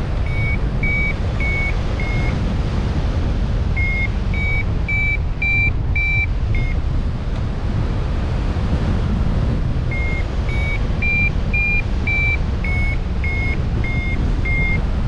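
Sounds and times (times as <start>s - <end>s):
steady low rumble: 0.0s - 15.0s
high beeping notes: 0.2s - 2.4s, 9.9s - 14.8s.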